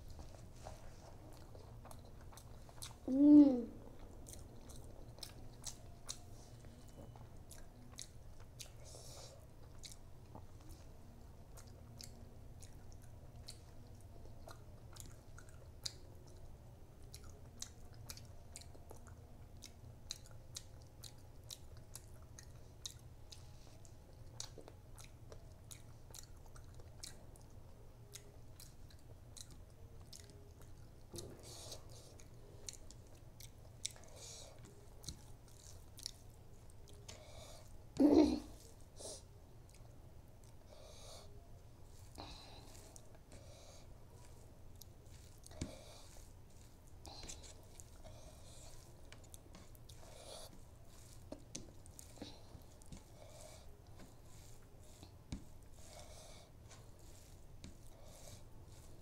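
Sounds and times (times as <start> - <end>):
wet chewing and lip smacking: 0.0 - 3.1, 3.8 - 59.0
person humming mm: 3.1 - 3.8.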